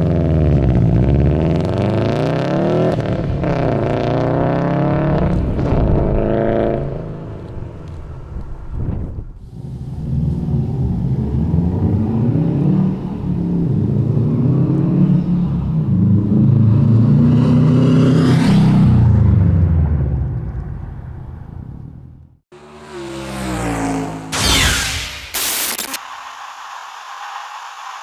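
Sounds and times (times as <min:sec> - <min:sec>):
car engine exhaust note: 0:09.4 - 0:17.3.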